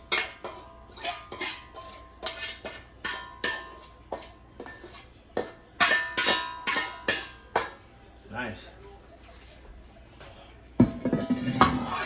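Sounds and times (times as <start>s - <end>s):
metal spoon knocking on pot: 10.8s - 12.0s.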